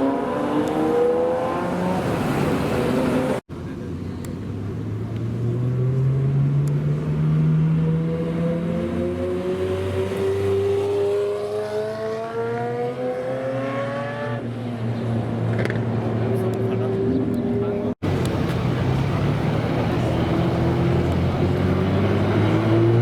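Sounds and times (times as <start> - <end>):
drone of other engines: 14.5 - 23.0
car engine accelerating: 15.5 - 23.0.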